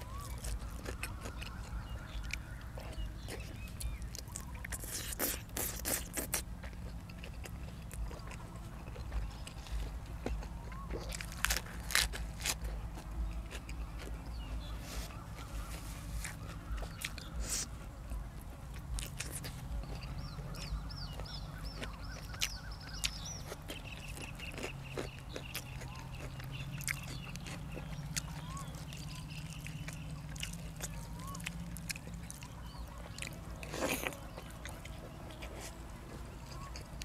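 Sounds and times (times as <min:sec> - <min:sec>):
chewing and crunching: 0:00.0 - 0:37.0
steady low hum: 0:00.0 - 0:37.0.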